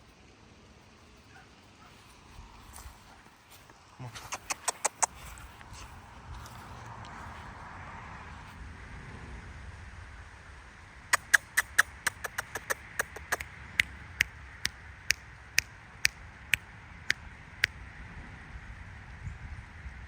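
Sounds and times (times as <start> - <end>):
sharp clicks: 4.2 - 5.2, 11.1 - 16.6.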